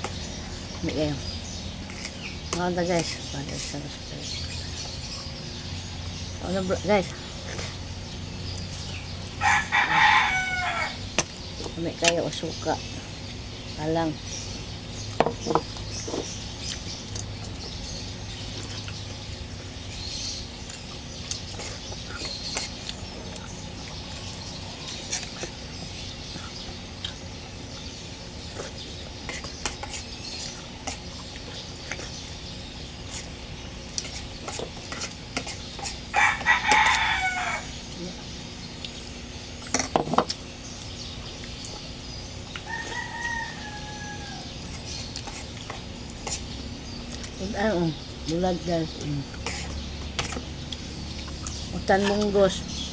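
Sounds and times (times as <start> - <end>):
rooster crowing: 9.4 - 11.1, 36.1 - 37.8, 42.6 - 44.6.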